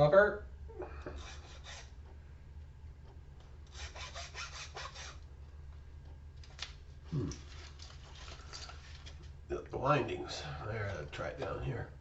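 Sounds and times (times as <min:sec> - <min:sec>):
hand tool rasping metal: 0:01.1 - 0:01.9, 0:03.7 - 0:05.2.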